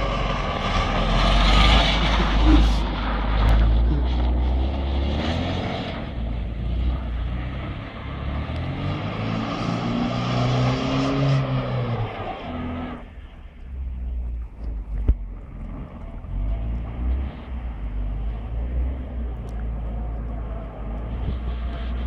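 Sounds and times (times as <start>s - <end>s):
car engine revving: 0.0s - 13.9s.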